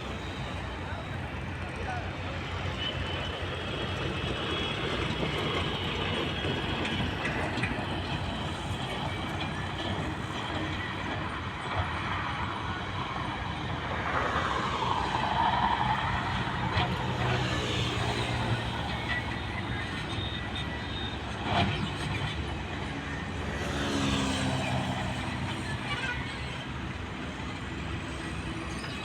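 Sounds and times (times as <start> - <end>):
diesel machinery running: 0.0 - 29.0.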